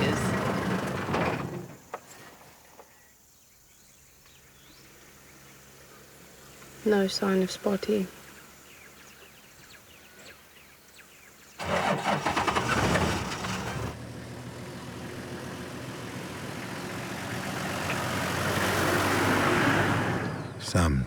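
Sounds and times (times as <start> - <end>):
vehicle engine starting and running: 0.0 - 1.8, 11.6 - 21.0.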